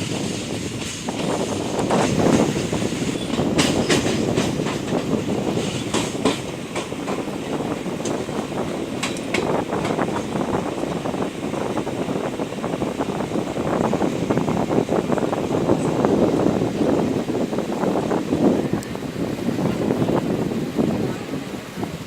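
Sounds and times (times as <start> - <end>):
wheels clacking over rail joints: 0.0 - 11.2
train rumbling along track: 0.0 - 22.0.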